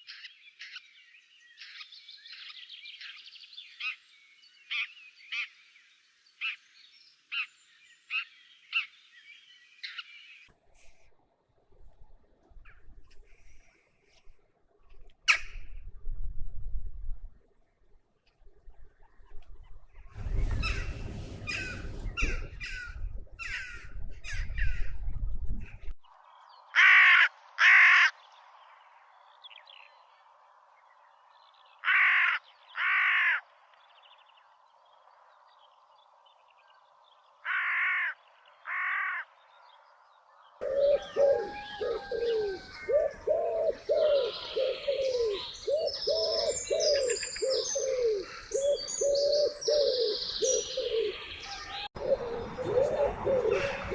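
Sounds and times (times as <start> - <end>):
birds chirping: 18.9 - 53.9
chorus of many birds: 25.8 - 53.9
harsh bird calls: 40.6 - 53.9.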